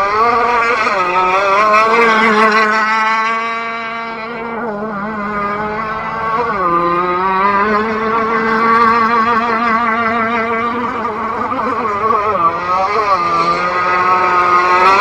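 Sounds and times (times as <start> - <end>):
small boat engine buzzing: 0.0 - 15.0.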